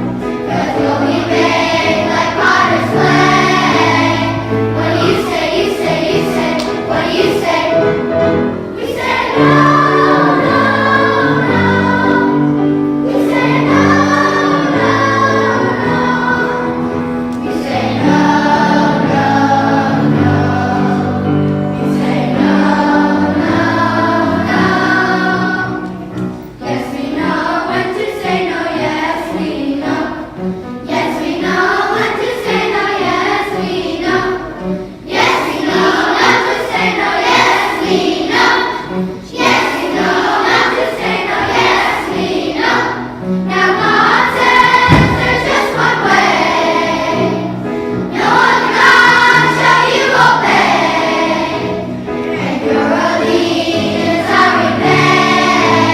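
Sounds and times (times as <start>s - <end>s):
children's choir singing: 0.0s - 55.9s.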